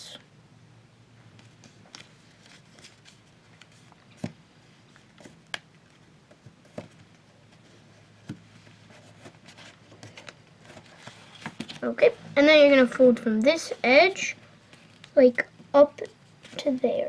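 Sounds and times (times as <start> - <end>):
faint steady hum: 0.0 - 17.0
paper being folded and creased: 1.4 - 4.3, 8.6 - 12.1.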